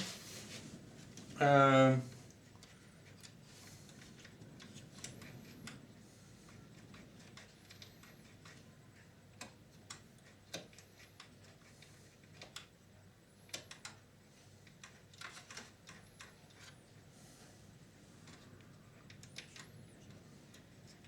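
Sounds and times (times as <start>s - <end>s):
small parts clicking and tapping: 9.3s - 16.8s, 18.2s - 21.0s.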